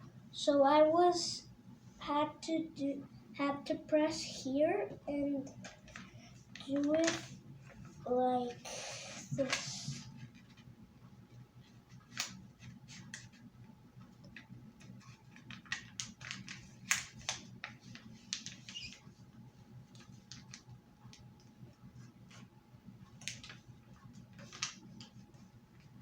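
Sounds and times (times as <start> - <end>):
paper crinkling while folded: 5.6 - 8.0, 8.7 - 10.7, 11.6 - 13.5, 14.3 - 21.2, 21.9 - 26.0.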